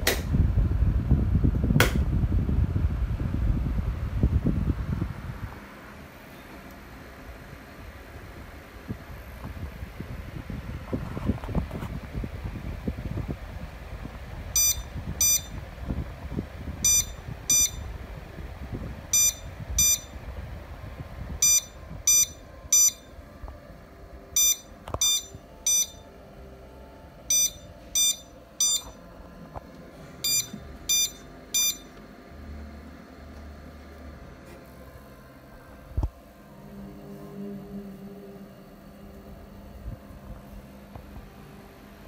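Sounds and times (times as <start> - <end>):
low whirring rumble: 0.0 - 42.0
electronic warning buzzer beeping: 14.6 - 15.6, 16.8 - 17.9, 19.1 - 20.2, 21.4 - 23.1, 24.4 - 26.1, 27.3 - 29.0, 30.2 - 32.0.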